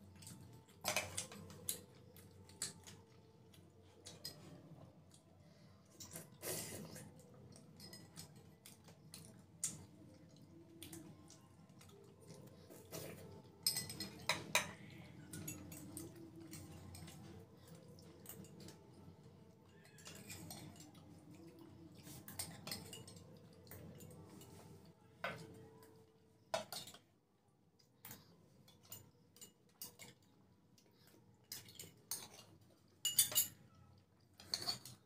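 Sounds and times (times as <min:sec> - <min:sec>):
spoons clinking against bowls: 0:07.7 - 0:09.2, 0:12.6 - 0:25.5, 0:28.1 - 0:30.3, 0:31.4 - 0:33.8, 0:34.4 - 0:35.0.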